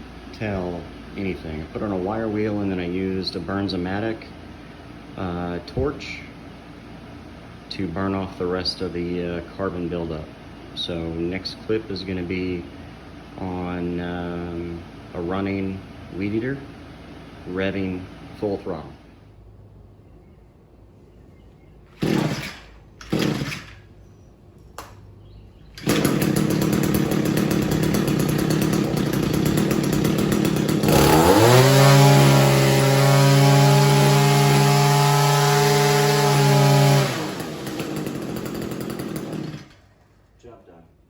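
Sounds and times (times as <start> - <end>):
string trimmer engine revving: 21.9 - 23.9, 25.8 - 39.8.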